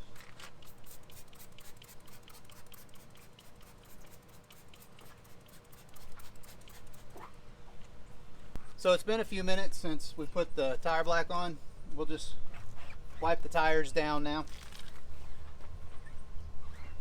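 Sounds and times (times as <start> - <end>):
trigger sprayer spritzes and clicks: 0.2 - 7.2.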